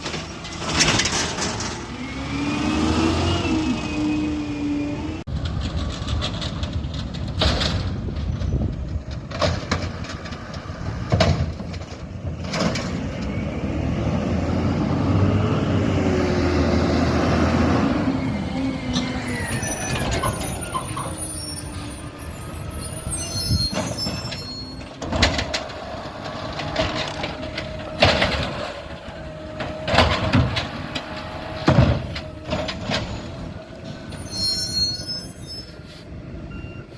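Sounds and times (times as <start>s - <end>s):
diesel engine revving: 0.0s - 5.9s, 12.2s - 34.5s.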